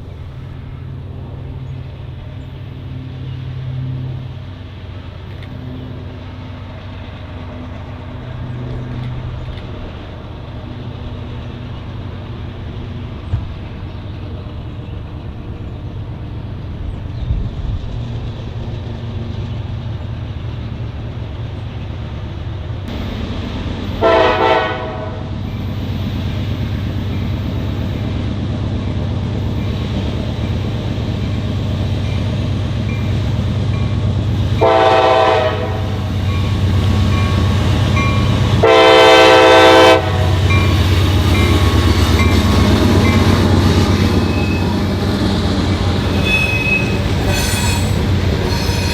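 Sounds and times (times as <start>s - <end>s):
train rumbling: 0.0s - 48.9s
train horn: 24.0s - 25.3s, 34.6s - 36.1s, 38.1s - 40.7s, 46.0s - 48.9s.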